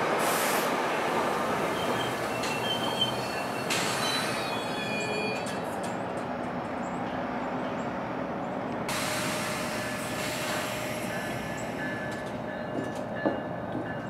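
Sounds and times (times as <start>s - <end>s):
idling train rumble: 0.0s - 14.0s
faint wheel squeal: 1.7s - 5.6s.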